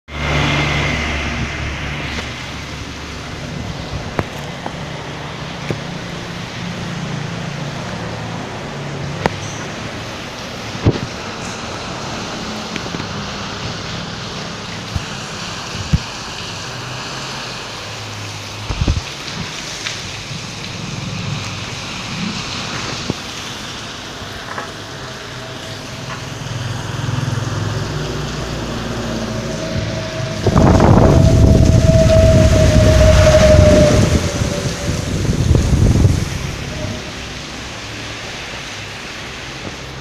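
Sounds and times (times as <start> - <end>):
vehicle engine hum: 0.0 - 40.0
steady rain hiss: 0.2 - 40.0.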